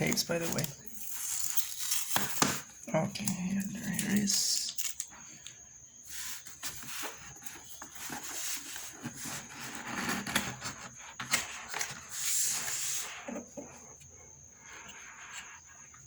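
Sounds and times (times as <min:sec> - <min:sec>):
cardboard rubbing and scraping: 0:06.1 - 0:13.5.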